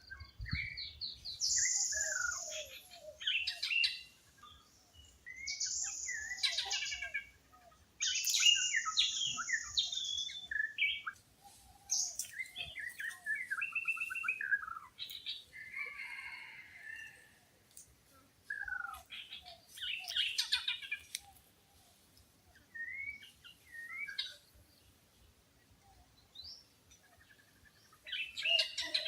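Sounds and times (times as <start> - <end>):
birds singing: 0.0 - 17.3, 18.5 - 29.0.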